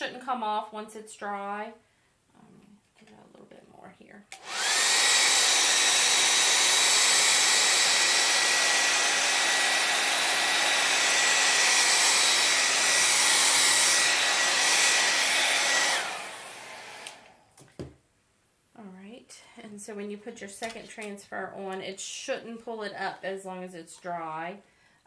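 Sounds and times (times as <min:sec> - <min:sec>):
hair dryer blowing with high whine: 0:04.3 - 0:17.5
hair dryer spinning down: 0:04.3 - 0:17.5.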